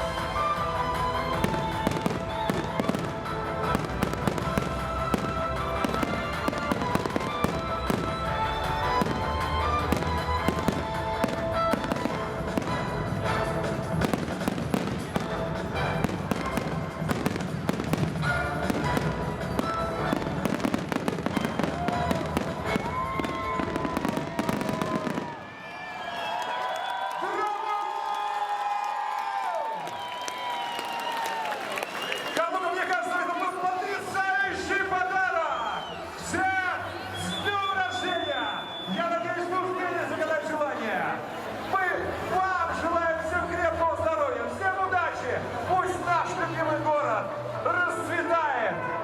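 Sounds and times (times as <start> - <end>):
music with sustained notes: 0.0 - 25.2
fireworks bangs and crackles: 0.0 - 25.6.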